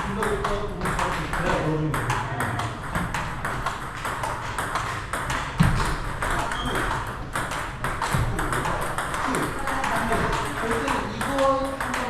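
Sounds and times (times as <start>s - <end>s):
table tennis balls clicking: 0.0s - 12.0s.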